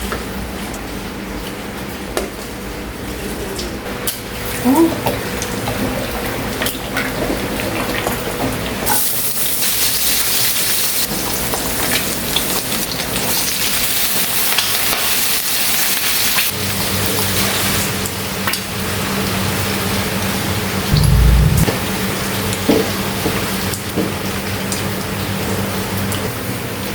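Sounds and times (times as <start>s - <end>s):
low steady hum: 20.9s - 21.7s.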